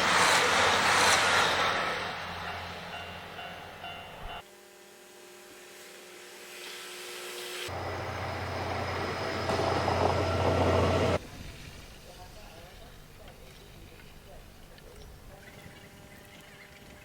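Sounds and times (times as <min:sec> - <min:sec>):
noisy train with deep hum: 0:00.0 - 0:04.5, 0:07.4 - 0:11.4
electric train humming: 0:00.0 - 0:11.2.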